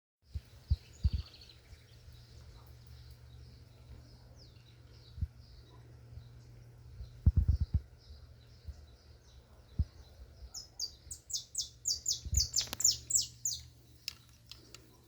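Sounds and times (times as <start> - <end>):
small birds chirping: 0.3 - 15.0
dull low thumps: 6.9 - 8.9.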